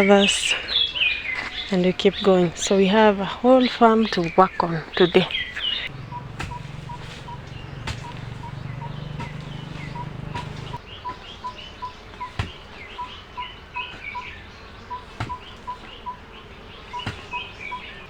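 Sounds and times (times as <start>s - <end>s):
birds chirping: 0.0s - 18.0s
low hum: 5.9s - 10.8s
sharp knocks: 5.9s - 10.8s.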